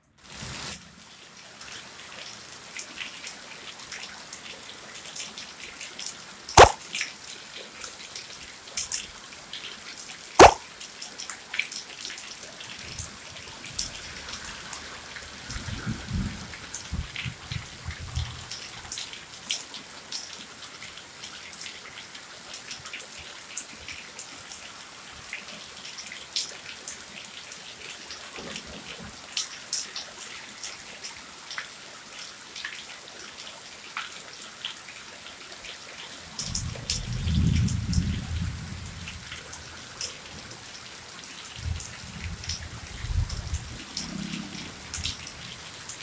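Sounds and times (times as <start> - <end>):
raindrops ticking close by: 1.1 - 46.0
heavy rain hissing: 36.9 - 46.0.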